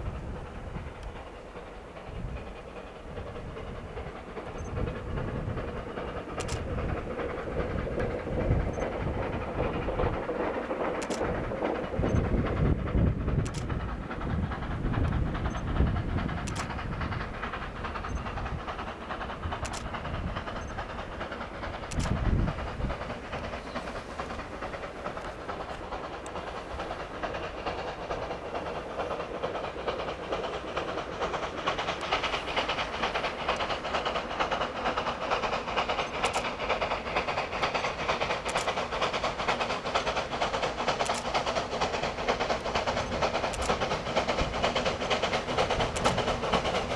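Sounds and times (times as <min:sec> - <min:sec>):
steam hiss: 0:00.0 - 0:46.9
train wheels rattling on track: 0:00.0 - 0:46.9.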